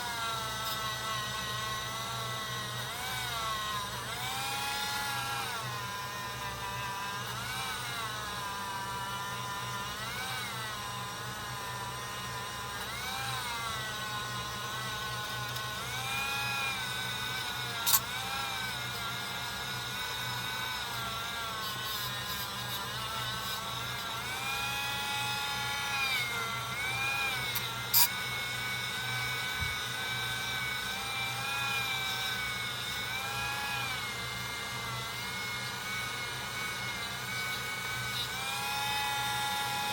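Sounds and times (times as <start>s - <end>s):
buffing wheel whining: 0.6s - 39.9s.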